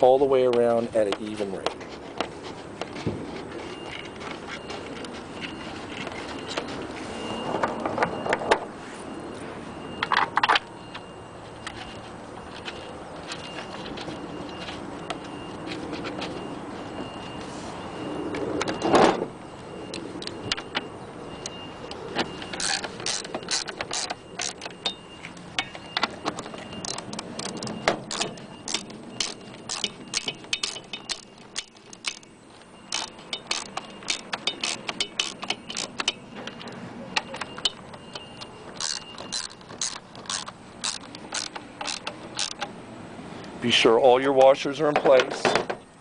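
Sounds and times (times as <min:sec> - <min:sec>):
wrench clicking on bolts: 0:22.5 - 0:25.0, 0:25.6 - 0:32.3, 0:32.9 - 0:36.7, 0:37.3 - 0:42.7.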